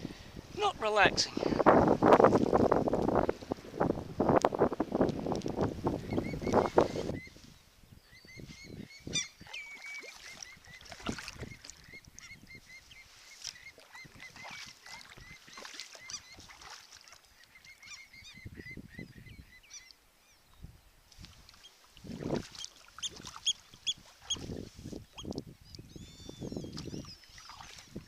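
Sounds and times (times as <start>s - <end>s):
birds calling: 5.9s - 20.7s, 21.5s - 27.8s
kayak paddle splashing: 9.4s - 17.8s, 21.2s - 25.3s, 26.7s - 28.0s.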